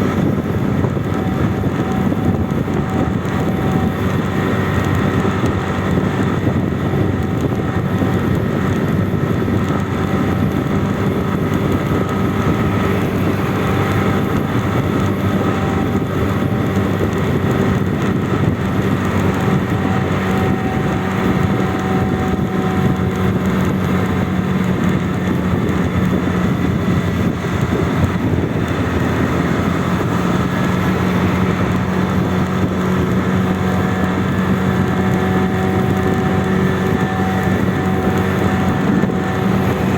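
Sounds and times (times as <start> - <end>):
road and wind noise: 0.0 - 39.9
vehicle engine running: 0.0 - 39.9.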